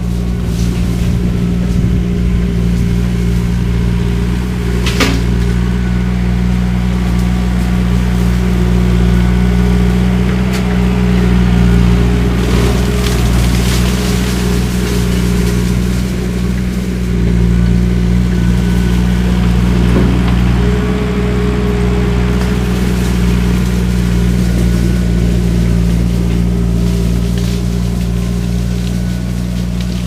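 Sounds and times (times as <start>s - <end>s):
shredder head cutting cane: 0.0s - 30.0s
skid steer engine high revs: 0.0s - 30.0s.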